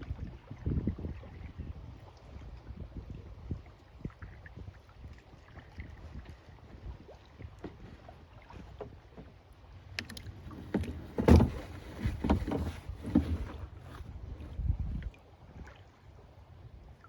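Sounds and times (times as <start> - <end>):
paddle splashes: 3.6 - 17.0
paddle knocks on kayak hull: 10.0 - 14.0.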